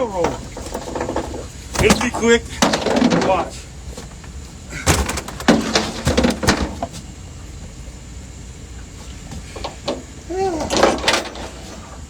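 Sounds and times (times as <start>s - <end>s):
sharp knocks and clatter: 4.8s - 7.0s.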